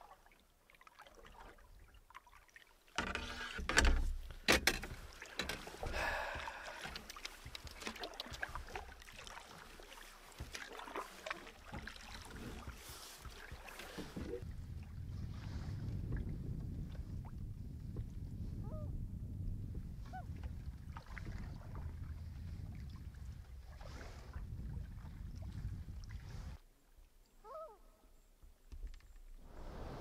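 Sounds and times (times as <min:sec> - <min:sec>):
paddle strokes in water: 0:00.0 - 0:17.4, 0:20.0 - 0:26.6.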